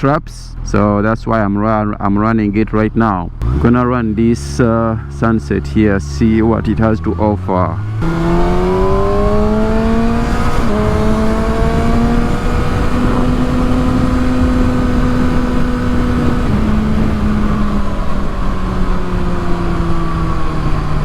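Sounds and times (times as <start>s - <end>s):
motorcycle engine revving: 3.3s - 21.0s
wind rushing: 7.8s - 21.0s.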